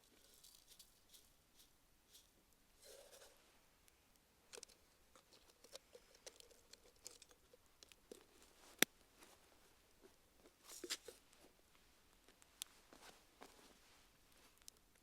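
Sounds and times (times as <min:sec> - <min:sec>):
campfire crackling: 0:03.8 - 0:11.4.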